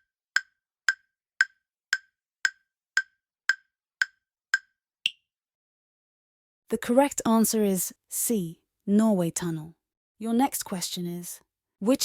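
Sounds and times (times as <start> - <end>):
countdown timer ticking: 0.4 - 5.2
higher-pitched tick: 0.4 - 5.2.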